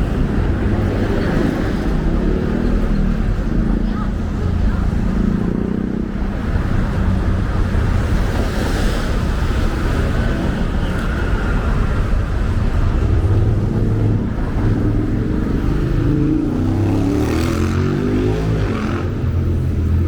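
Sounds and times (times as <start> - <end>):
car passing: 0.0 - 20.0
vehicle engines running: 0.0 - 20.0.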